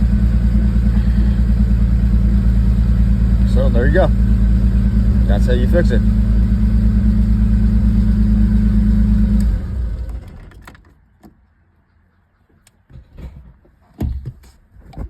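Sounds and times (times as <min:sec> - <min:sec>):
car engine idling: 0:00.0 - 0:11.9
knocks and thumps: 0:12.8 - 0:15.0.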